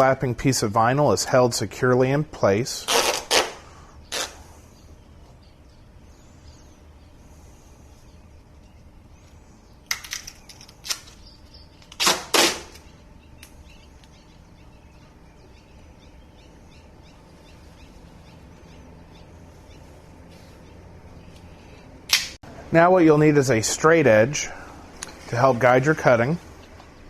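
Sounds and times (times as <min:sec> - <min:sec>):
tape pulled and torn: 0:02.8 - 0:04.4, 0:09.9 - 0:11.2, 0:11.8 - 0:12.9, 0:22.1 - 0:22.4.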